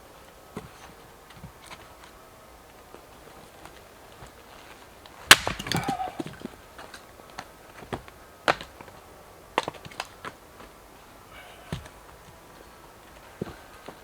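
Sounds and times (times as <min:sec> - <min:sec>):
wood cracking and splintering: 0:05.2 - 0:06.9.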